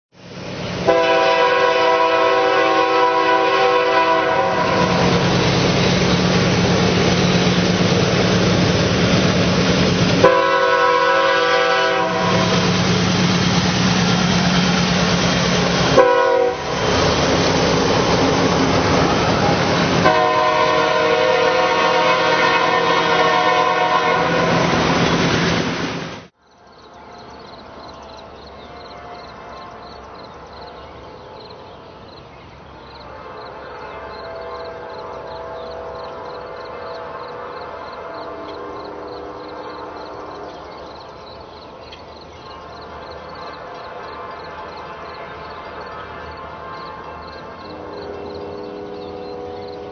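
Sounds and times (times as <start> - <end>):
locomotive engine and rolling train: 0.1 - 49.9
locomotive air horn blasts: 0.8 - 5.3, 10.2 - 13.0, 15.5 - 17.0, 18.4 - 25.0, 33.0 - 40.0, 43.5 - 49.9.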